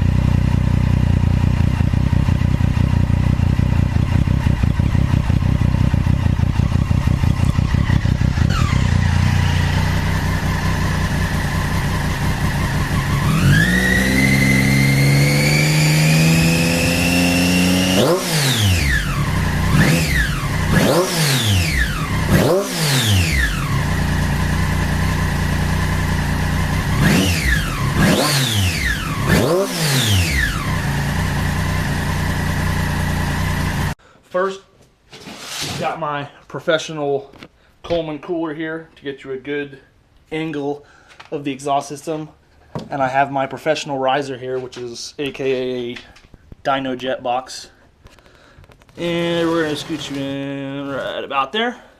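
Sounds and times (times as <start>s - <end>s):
engine throttle blips: 0.0s - 34.0s
motorcycle engine running: 0.0s - 34.0s.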